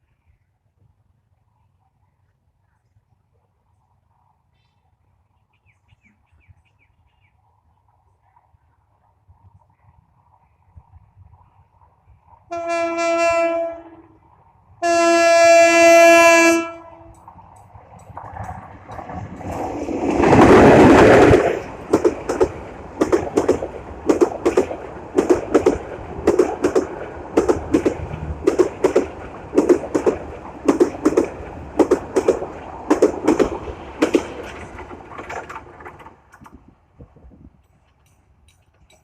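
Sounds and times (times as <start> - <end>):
train rushing past: 11.3 - 36.5
train wheels clickety-clack: 17.1 - 36.7, 37.6 - 39.0.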